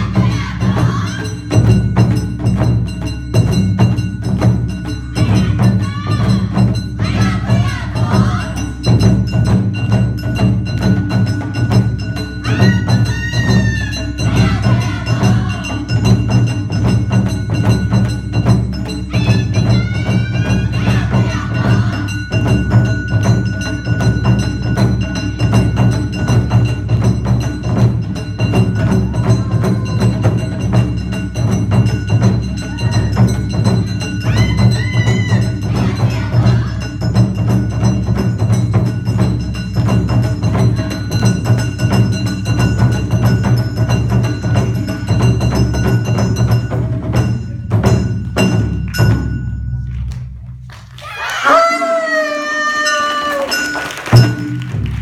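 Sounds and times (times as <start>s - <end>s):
ringing bell-gong: 0.0s - 50.1s, 52.5s - 55.0s
clacking wooden percussion: 0.0s - 51.6s, 52.6s - 55.0s
fast drumming: 0.0s - 51.7s, 52.8s - 55.0s.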